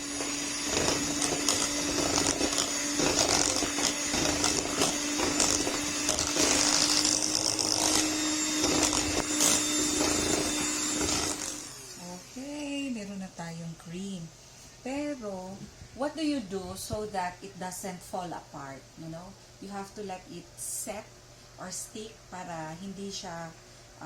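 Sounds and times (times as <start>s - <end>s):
electric mixer running: 0.0s - 12.7s.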